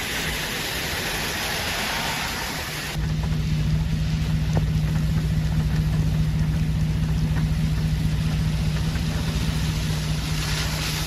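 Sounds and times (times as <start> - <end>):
car engine idling: 0.0 - 11.0
heavy rain on a wet road: 0.0 - 11.0.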